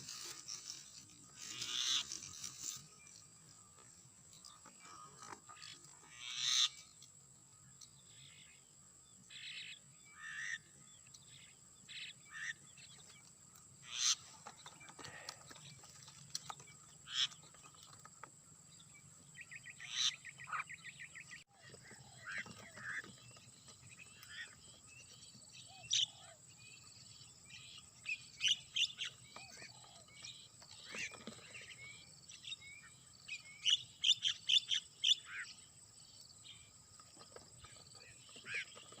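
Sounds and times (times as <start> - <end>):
rattling bird calls: 0.0 - 3.6, 4.3 - 7.0, 13.8 - 18.2, 28.4 - 32.0, 37.0 - 39.0
birds chirping: 0.0 - 39.0.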